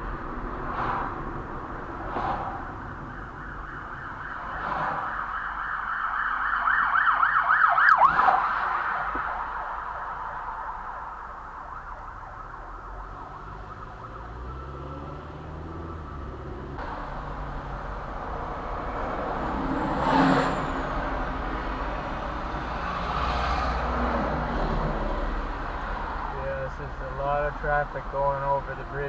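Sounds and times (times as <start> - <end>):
loud vehicle passing: 0.0 - 3.4, 4.2 - 5.6, 13.0 - 26.4
traffic rumble on bridge: 0.0 - 29.0
siren: 2.1 - 17.2.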